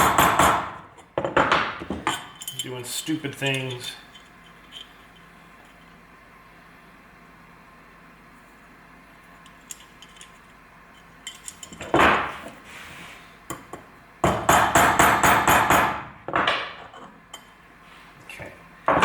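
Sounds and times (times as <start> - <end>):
hammer tapping metal on metal: 0.0 - 0.7, 13.5 - 16.6.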